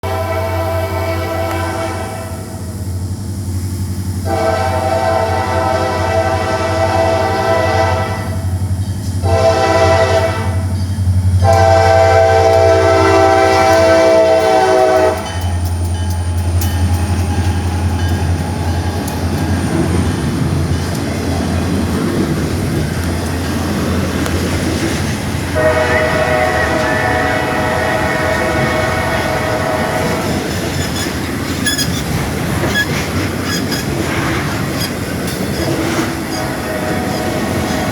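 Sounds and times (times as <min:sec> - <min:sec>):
locomotive air horn blasts: 0:00.0 - 0:02.8, 0:04.2 - 0:08.6, 0:09.2 - 0:10.7, 0:11.4 - 0:15.6, 0:25.5 - 0:30.6, 0:36.2 - 0:37.9
train rumbling past: 0:00.0 - 0:37.9
train wheel noise: 0:00.0 - 0:37.9.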